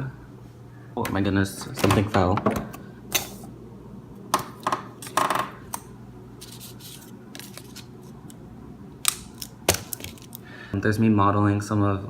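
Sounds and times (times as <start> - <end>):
small hard objects clicking: 9.1 - 10.4.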